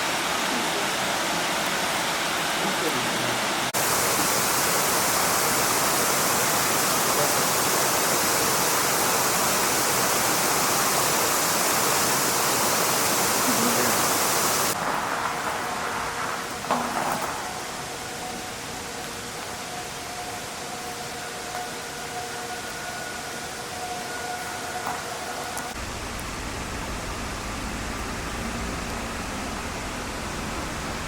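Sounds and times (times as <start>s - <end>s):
mountain stream rushing: 0.0s - 23.4s.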